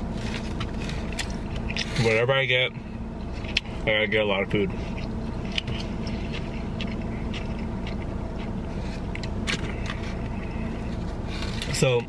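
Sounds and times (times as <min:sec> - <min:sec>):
car air conditioning blowing: 0:00.0 - 0:12.0
chewing: 0:04.8 - 0:11.0.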